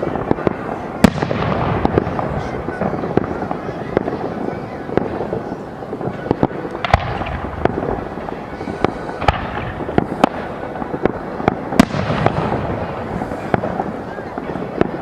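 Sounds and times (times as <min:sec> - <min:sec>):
fireworks bangs: 0:00.0 - 0:15.0
fireworks crackle: 0:00.0 - 0:15.0.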